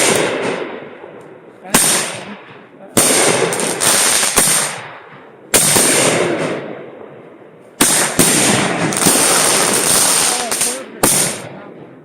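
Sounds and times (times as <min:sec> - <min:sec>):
fireworks bangs: 0:00.0 - 0:12.0
fireworks crackling hiss: 0:02.9 - 0:04.8, 0:07.8 - 0:11.5.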